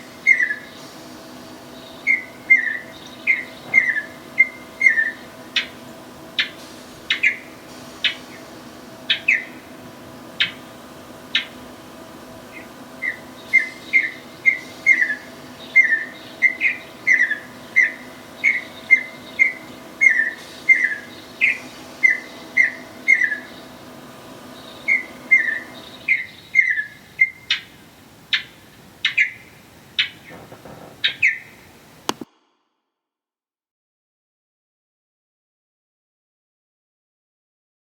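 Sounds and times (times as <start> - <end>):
faint steady hum: 0.0 - 32.3
bird chirping: 0.2 - 0.8, 1.7 - 8.5, 9.1 - 9.7, 11.3 - 11.6, 12.5 - 23.8, 24.5 - 32.2.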